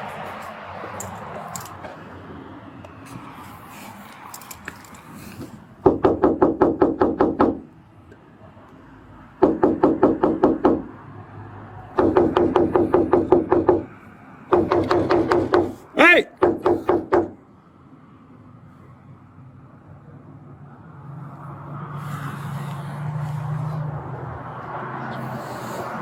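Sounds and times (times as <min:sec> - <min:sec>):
rapid knocking on a door: 0:05.8 - 0:07.6, 0:09.4 - 0:10.9, 0:12.0 - 0:13.9, 0:14.5 - 0:15.8, 0:16.4 - 0:17.4.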